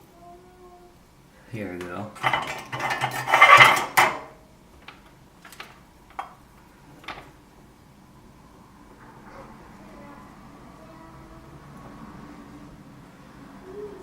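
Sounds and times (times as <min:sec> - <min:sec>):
metal tools scraping rattle: 0:02.2 - 0:04.4.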